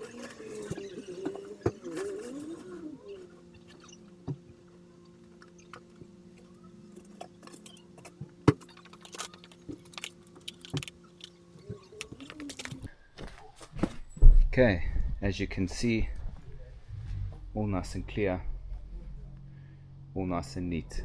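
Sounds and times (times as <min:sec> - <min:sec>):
pigeon cooing: 0:00.0 - 0:04.1, 0:11.5 - 0:12.9
steady low hum: 0:00.0 - 0:21.0.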